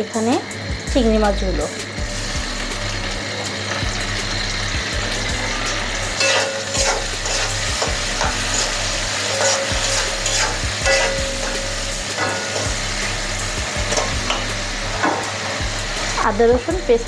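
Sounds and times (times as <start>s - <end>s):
shrimp sizzling in hot oil: 0.0s - 17.0s
spatula scraping a pan: 6.2s - 12.8s.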